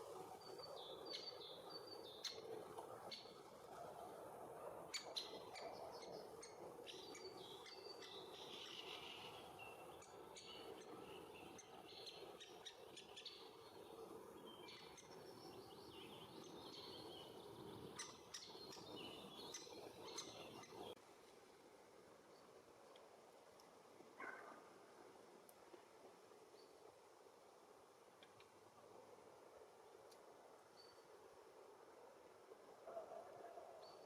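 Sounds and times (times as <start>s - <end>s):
birds chirping: 4.9s - 21.0s.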